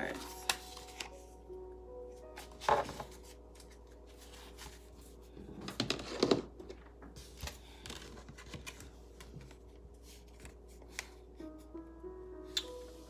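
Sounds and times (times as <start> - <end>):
cards being shuffled: 0.0 - 1.3, 7.2 - 11.2.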